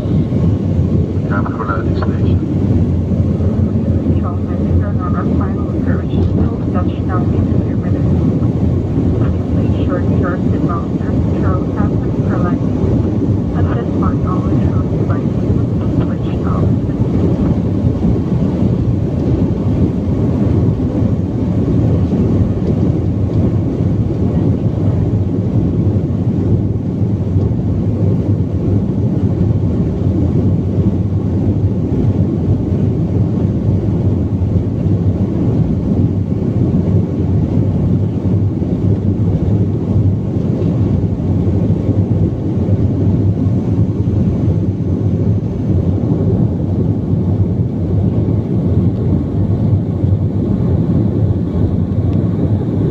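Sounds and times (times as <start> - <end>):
airliner cabin rumble: 0.0 - 52.9.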